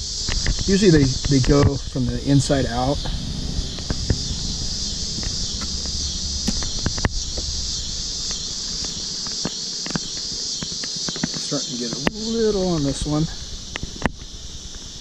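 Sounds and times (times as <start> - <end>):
crickets chirping: 0.0 - 15.0
hive frames clicking and knocking: 8.8 - 12.4.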